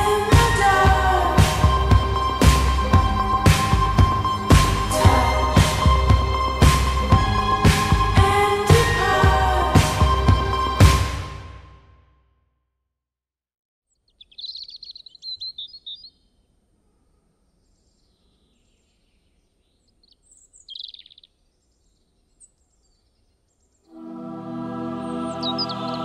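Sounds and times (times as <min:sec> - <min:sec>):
wild birds singing: 0:13.9 - 0:23.9, 0:25.0 - 0:26.0
faint outdoor ambience: 0:14.0 - 0:26.0.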